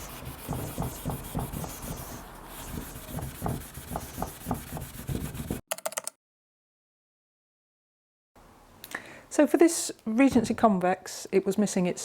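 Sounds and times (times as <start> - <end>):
wire wool scrubbing a frame: 0.0 - 5.6.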